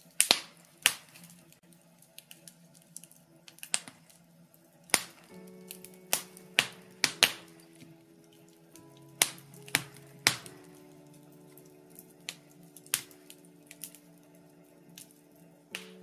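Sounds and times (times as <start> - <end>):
logs crackling in fireplace: 0.0 - 16.0
soft background music chords: 0.0 - 16.0
sharp fire pops: 4.9 - 7.5.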